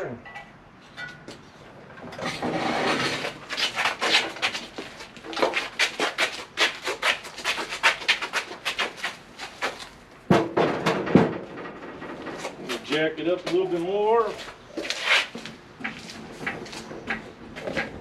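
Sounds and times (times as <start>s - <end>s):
metal clanking and scraping: 0.2s - 4.7s, 10.3s - 12.9s.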